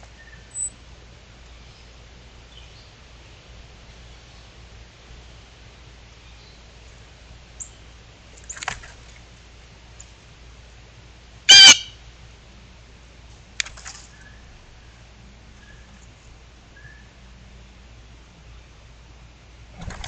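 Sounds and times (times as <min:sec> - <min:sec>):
bird calling: 0:00.0 - 0:00.8, 0:11.5 - 0:12.0.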